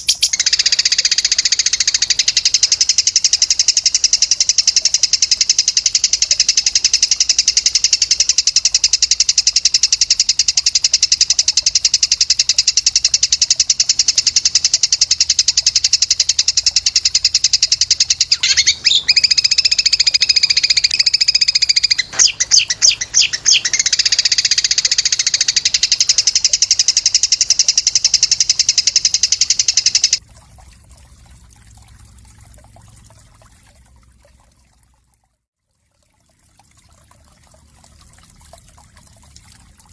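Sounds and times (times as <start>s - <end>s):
songbird trilling: 0.0s - 3.2s, 12.4s - 30.2s.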